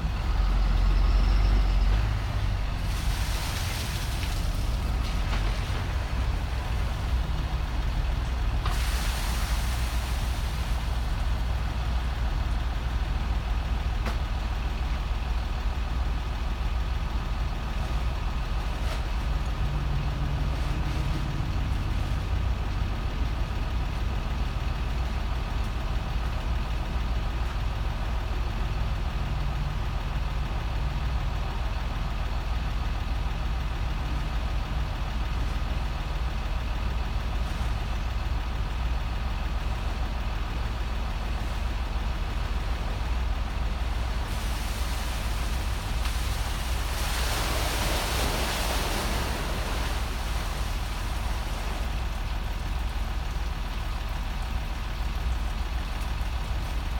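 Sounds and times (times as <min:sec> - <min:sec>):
diesel engine idling: 0:00.0 - 0:56.9
rushing hiss: 0:08.7 - 0:11.1, 0:44.1 - 0:51.9.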